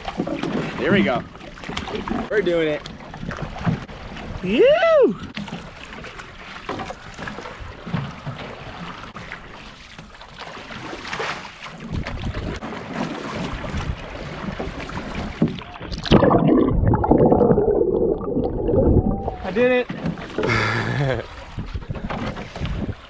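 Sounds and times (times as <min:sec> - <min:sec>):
water splashing against canoe: 0:00.0 - 0:23.0
wind rumbling on microphone: 0:11.8 - 0:12.6, 0:13.4 - 0:19.8, 0:20.4 - 0:23.0.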